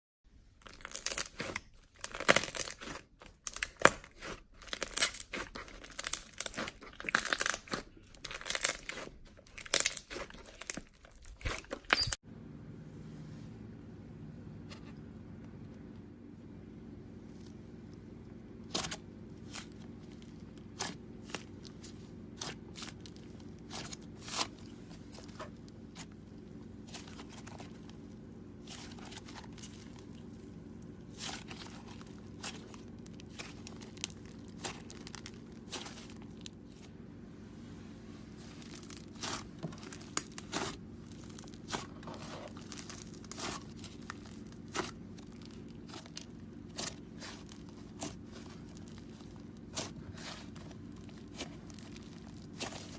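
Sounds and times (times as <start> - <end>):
slime squishing with sticky pops: 0.6 - 12.2, 18.6 - 36.8, 38.4 - 52.9
steady low hum: 12.2 - 52.9.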